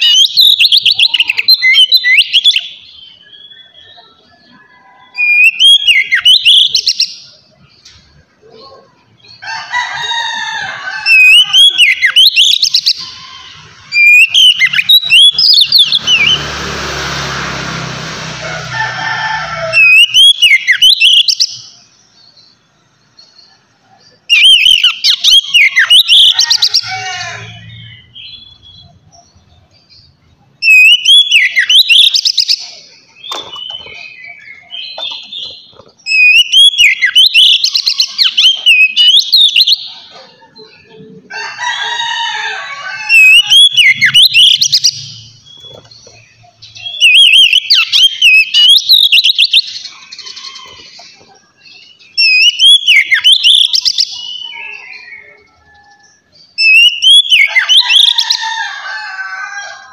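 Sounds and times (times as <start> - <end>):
bird whistling song: 0.0 - 7.4, 11.1 - 16.4, 19.8 - 21.7, 24.3 - 26.8, 30.6 - 40.1, 43.1 - 51.3, 51.9 - 58.2.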